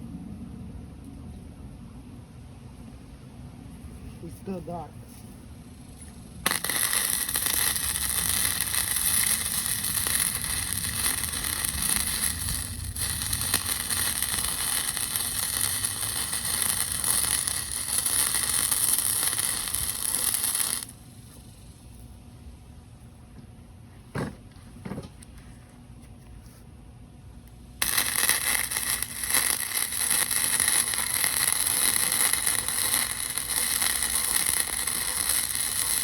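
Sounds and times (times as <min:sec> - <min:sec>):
welder arc crackling: 0:06.4 - 0:21.0, 0:27.8 - 0:36.0.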